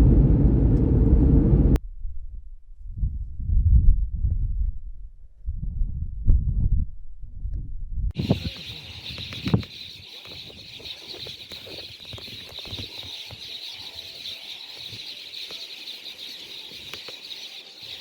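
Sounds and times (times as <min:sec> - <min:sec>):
high-pitched wildlife chirring: 0:08.2 - 0:18.0.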